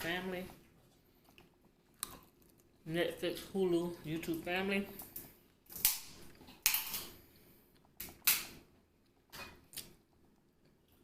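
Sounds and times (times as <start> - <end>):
close-up eating sounds: 0.0 - 11.0.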